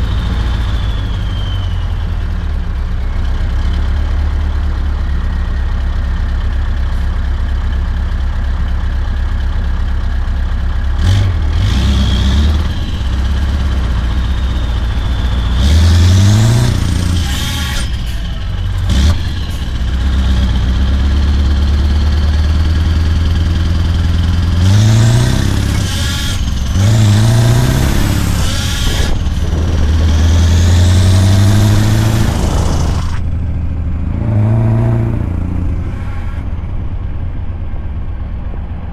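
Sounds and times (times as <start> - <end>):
high whistle: 0.0 - 2.6, 12.6 - 19.7
truck engine revving: 0.0 - 2.8, 11.0 - 37.5.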